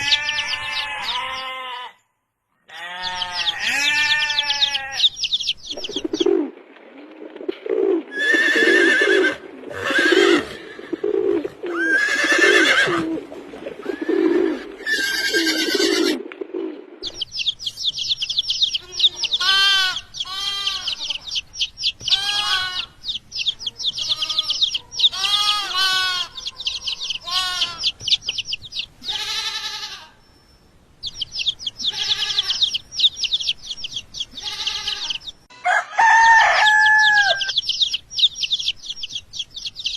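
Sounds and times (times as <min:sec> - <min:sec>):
higher animal calls: 0:08.1 - 0:13.2, 0:13.8 - 0:16.3.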